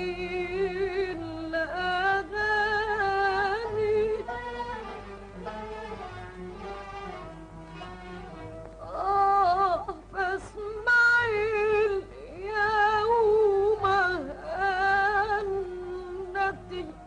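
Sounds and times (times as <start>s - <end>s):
woman singing: 0.0s - 4.9s, 8.8s - 17.0s.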